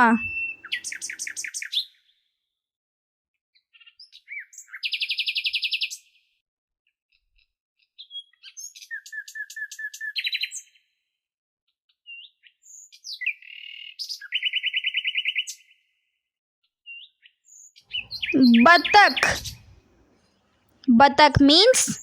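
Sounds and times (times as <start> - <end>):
myna chirping and whistling: 0.0 - 1.2, 17.9 - 19.7.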